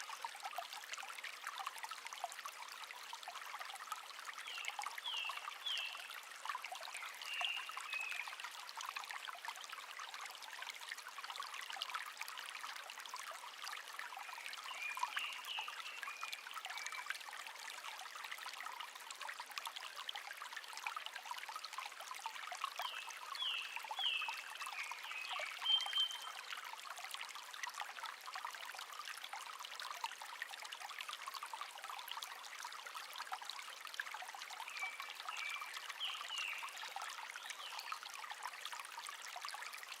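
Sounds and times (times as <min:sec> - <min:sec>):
shallow stream babbling: 0:00.0 - 0:40.0
songbird chirping: 0:22.8 - 0:26.4.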